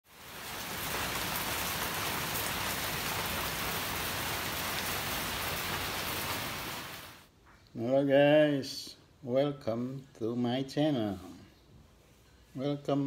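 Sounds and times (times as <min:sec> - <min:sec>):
steady rain falling: 0:00.0 - 0:07.3.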